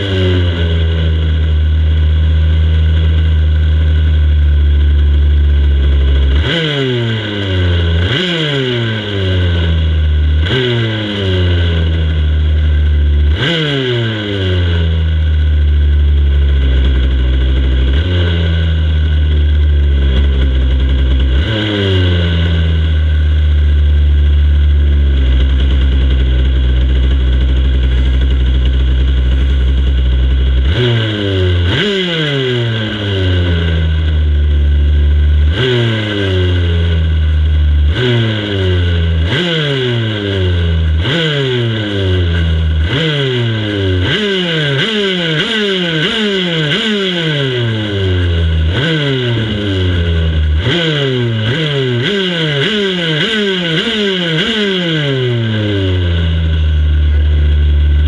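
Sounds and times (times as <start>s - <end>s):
motorcycle throttle blips: 0.0s - 58.0s
racing motorcycle engines running: 0.0s - 58.0s.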